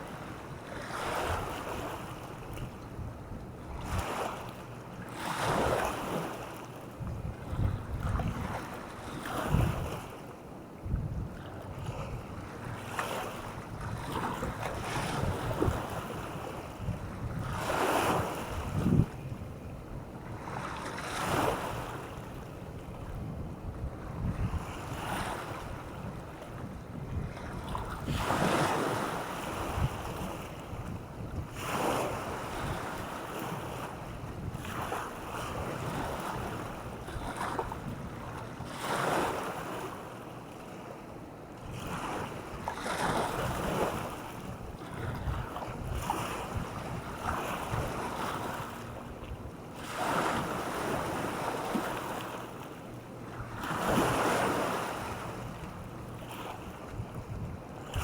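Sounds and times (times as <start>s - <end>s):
wind rumbling on microphone: 0.0s - 4.4s, 7.0s - 10.2s, 10.8s - 39.0s, 41.6s - 49.5s, 53.3s - 58.0s
waves breaking on a beach: 0.0s - 58.0s.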